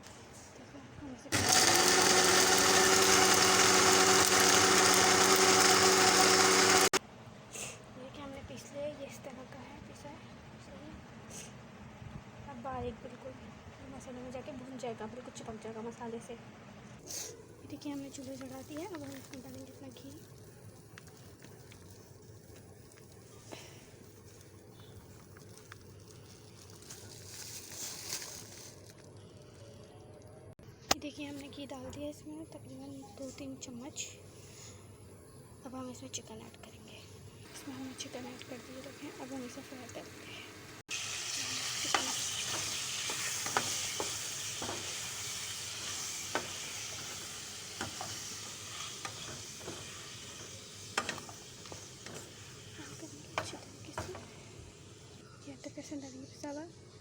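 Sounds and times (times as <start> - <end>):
chicken sizzling in hot fat: 17.1 - 28.7, 37.4 - 55.2
soft hiss in pan: 37.4 - 55.2
spoon scraping a pot: 41.7 - 54.3.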